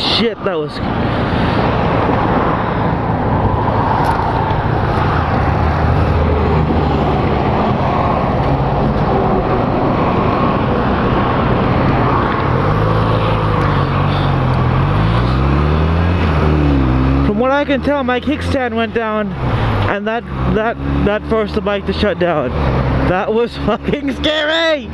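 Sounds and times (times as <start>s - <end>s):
wind and road rush: 0.0s - 24.9s
low engine hum: 0.8s - 18.3s.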